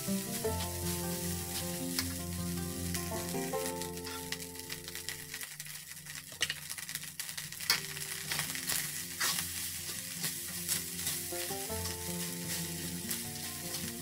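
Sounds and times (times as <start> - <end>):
fried rice sizzling in a pan: 0.0 - 14.0
spatula scraping a pan: 8.0 - 14.0.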